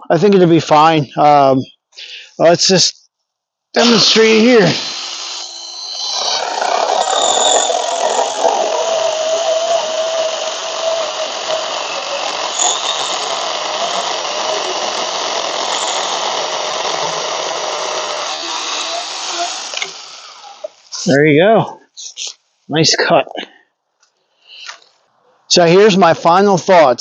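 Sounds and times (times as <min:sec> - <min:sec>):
electric chainsaw cutting branch: 0:03.8 - 0:20.9.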